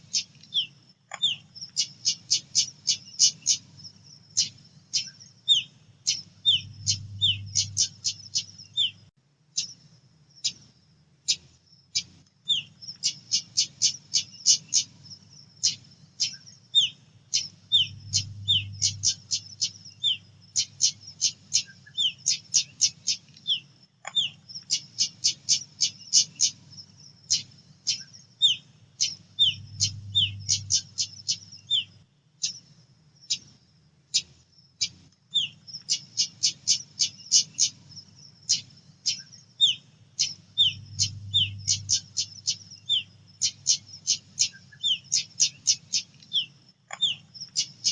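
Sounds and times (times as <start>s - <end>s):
faint low hum: 0.0s - 47.9s
bushchat calling sharp chips: 15.6s - 26.6s, 38.5s - 47.9s.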